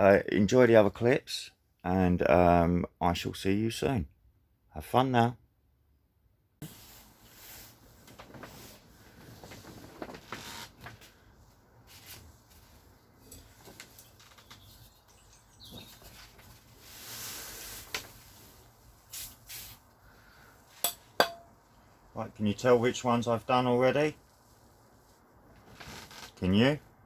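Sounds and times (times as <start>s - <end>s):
short rubbing hiss: 16.8s - 19.9s.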